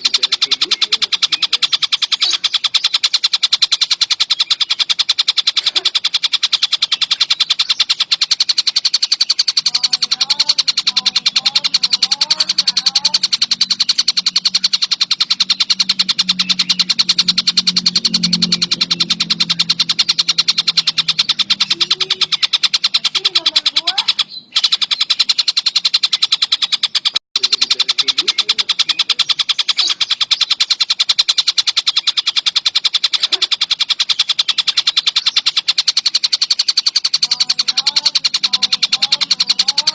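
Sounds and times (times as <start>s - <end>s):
low hum: 0.0s - 26.5s
kingfisher rattling chatter: 0.0s - 39.9s.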